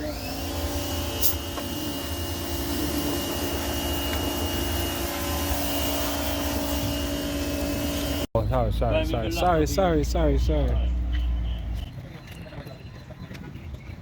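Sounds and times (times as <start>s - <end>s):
machine motor whining: 0.0s - 8.3s.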